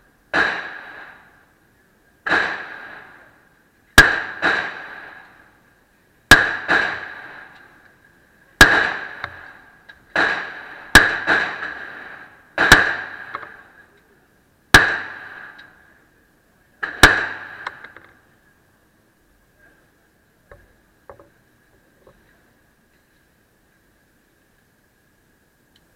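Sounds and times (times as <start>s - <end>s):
pistol shots: 0.3s - 1.3s, 2.2s - 3.2s, 4.0s - 5.4s, 6.3s - 7.7s, 8.6s - 13.7s, 14.7s - 15.8s, 16.8s - 18.0s.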